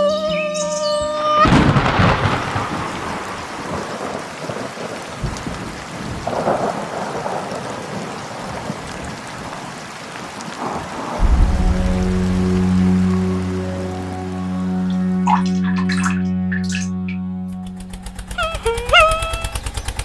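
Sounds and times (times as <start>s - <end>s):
steady rain: 0.0s - 20.0s
thunder rumbling: 1.4s - 17.0s.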